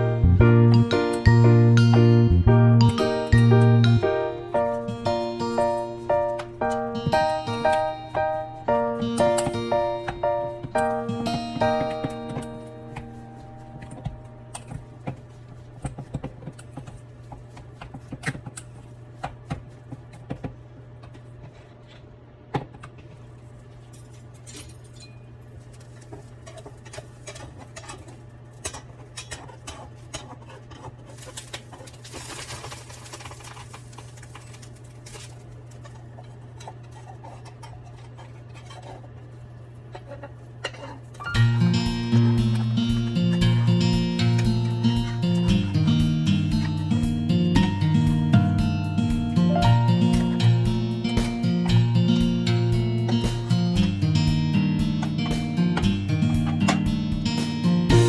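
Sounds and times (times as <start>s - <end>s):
steady low hum: 0.0s - 32.2s, 33.7s - 58.0s
rustling: 23.2s - 42.9s.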